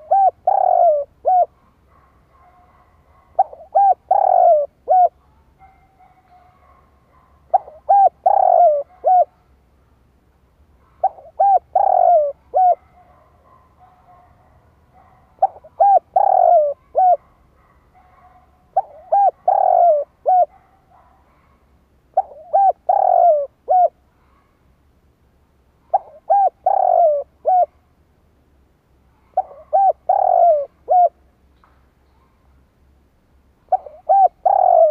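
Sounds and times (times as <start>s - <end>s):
dove cooing: 0.0s - 6.8s, 7.5s - 9.4s, 10.8s - 14.2s, 15.0s - 17.3s, 18.0s - 21.5s, 22.1s - 24.4s, 25.8s - 27.8s, 29.2s - 31.2s, 33.7s - 34.9s.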